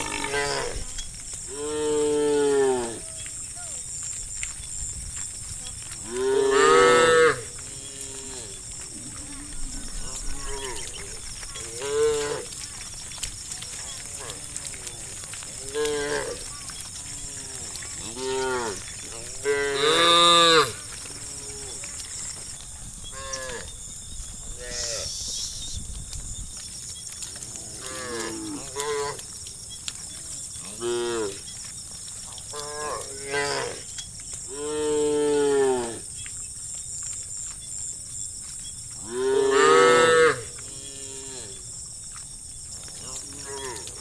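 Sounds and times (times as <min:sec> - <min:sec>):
cattle mooing: 0:00.0 - 0:03.2, 0:06.0 - 0:09.4, 0:10.0 - 0:12.7, 0:13.7 - 0:21.9, 0:39.0 - 0:41.6.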